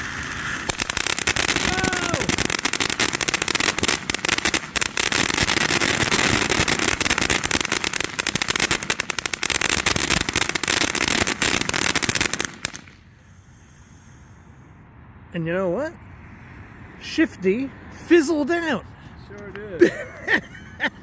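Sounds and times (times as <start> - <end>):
firework fountain crackling: 0.0 - 13.3.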